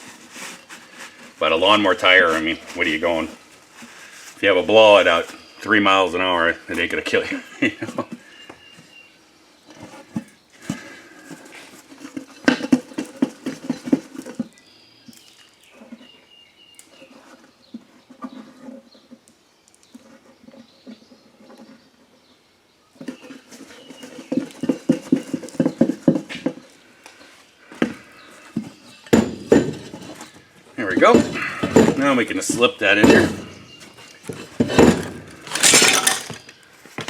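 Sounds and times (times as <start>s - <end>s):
handling noises: 0.0s - 37.0s
scrubbing rusted metal rim: 27.2s - 36.5s.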